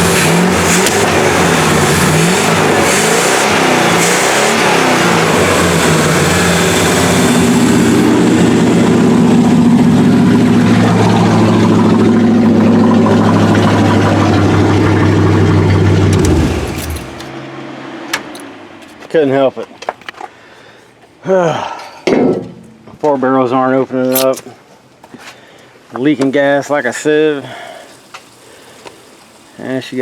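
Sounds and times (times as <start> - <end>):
truck engine revving and idling: 0.0 - 18.6, 26.5 - 30.0.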